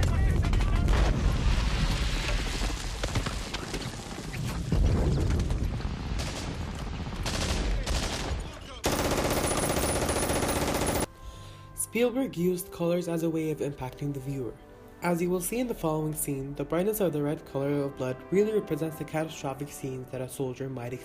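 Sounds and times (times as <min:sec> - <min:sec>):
rifle shots cracking: 0:06.2 - 0:11.1
machine-gun bursts: 0:07.2 - 0:11.1.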